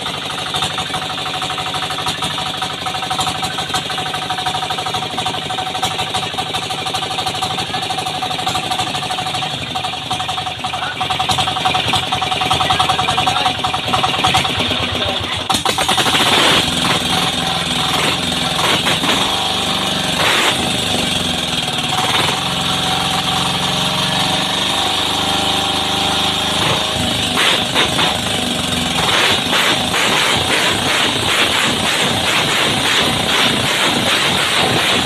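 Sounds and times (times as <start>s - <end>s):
diesel boat engine knocking: 0.0s - 18.6s.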